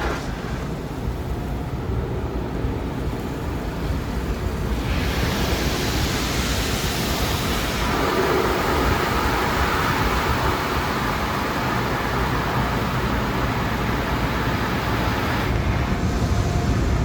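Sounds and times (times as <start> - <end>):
car wash equipment rumble: 0.0 - 17.0
water spray hissing on car: 4.7 - 15.5.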